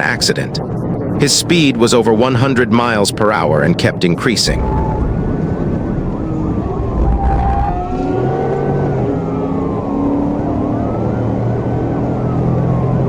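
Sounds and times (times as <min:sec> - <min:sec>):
police siren wailing: 0:04.3 - 0:13.0
car engine and road noise: 0:04.8 - 0:13.0.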